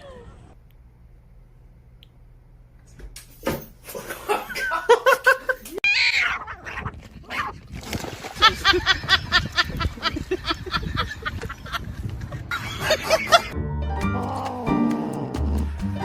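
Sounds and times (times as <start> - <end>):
people laughing: 8.4 - 13.6.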